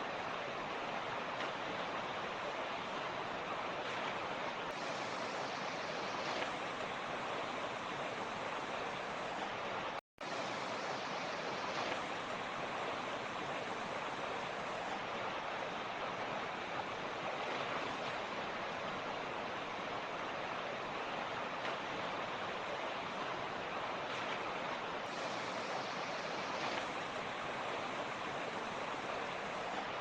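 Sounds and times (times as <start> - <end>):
stream rushing over rocks: 0.0 - 30.0.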